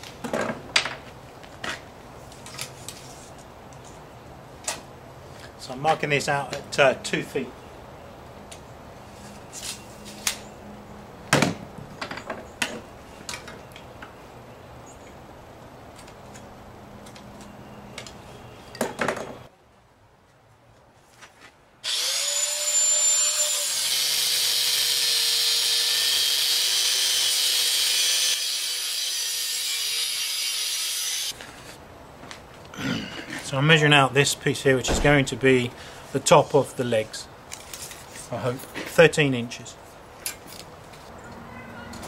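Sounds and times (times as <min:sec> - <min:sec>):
angle grinder cutting steel: 0:21.8 - 0:31.4.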